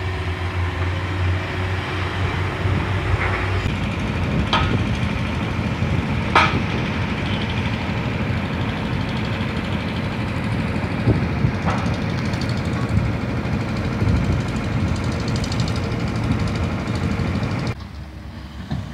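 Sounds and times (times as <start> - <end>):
heavy machinery engine running: 0.0 - 18.9.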